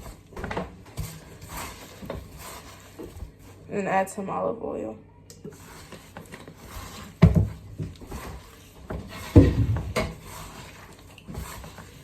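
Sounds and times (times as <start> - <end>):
dull thumps: 8.9 - 10.2.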